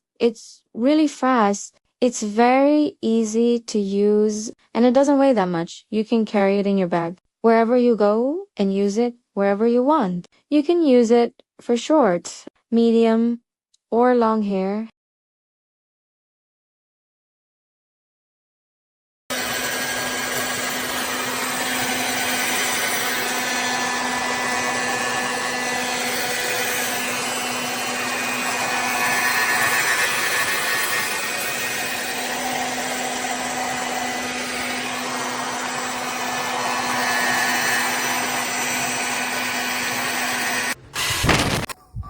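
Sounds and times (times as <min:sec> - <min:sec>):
hair dryer blowing: 0:19.3 - 0:41.7
loud uneven sound: 0:40.7 - 0:41.8.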